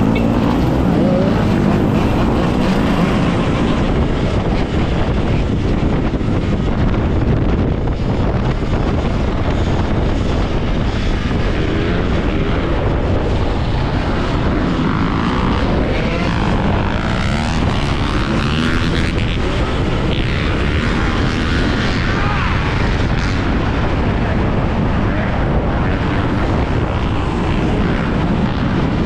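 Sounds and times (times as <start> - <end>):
motorbike engine: 0.0 - 9.1
wind rumble on microphone: 0.0 - 29.0.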